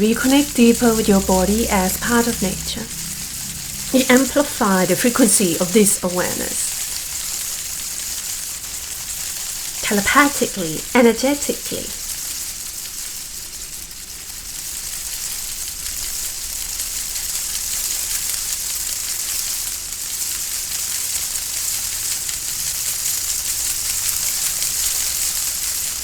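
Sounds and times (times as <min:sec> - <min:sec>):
steady high hiss: 0:00.0 - 0:07.7.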